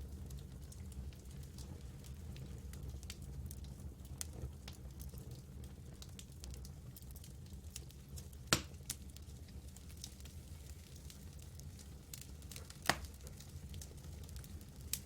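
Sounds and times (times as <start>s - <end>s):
campfire crackling: 0.0s - 15.0s
low rumble of fire: 0.0s - 15.0s
fire pops: 8.3s - 15.0s.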